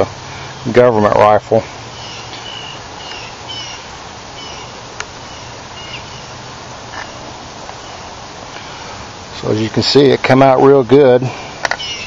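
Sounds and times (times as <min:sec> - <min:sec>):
steady hiss: 0:00.0 - 0:12.0
bird chirping: 0:01.9 - 0:08.8, 0:11.7 - 0:12.0.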